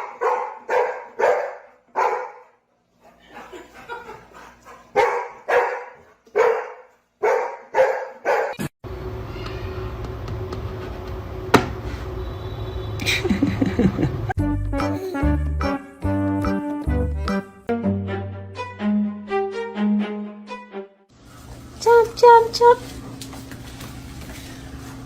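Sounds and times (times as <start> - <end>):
dog barking: 0.0 - 2.6, 4.9 - 8.6.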